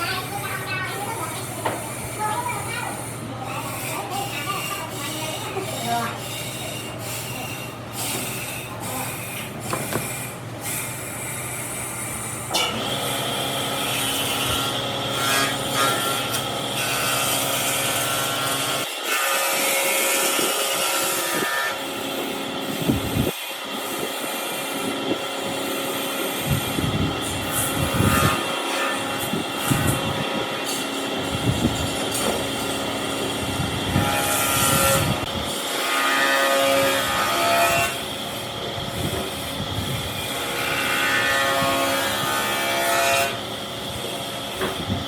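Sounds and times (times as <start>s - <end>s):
power tools running on wood: 0.0s - 45.0s.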